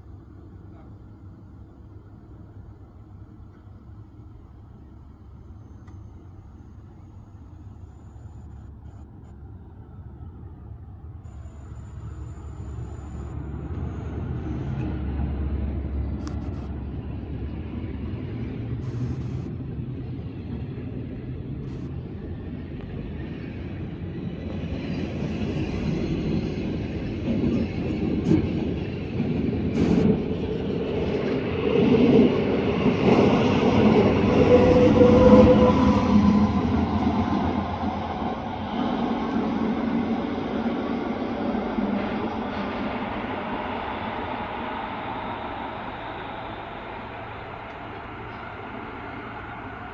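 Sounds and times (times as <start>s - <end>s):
rail joint clicks: 5.7s - 6.4s, 11.6s - 17.6s, 18.5s - 39.6s, 41.6s - 49.9s
train wheels rumbling on rail: 9.6s - 49.9s.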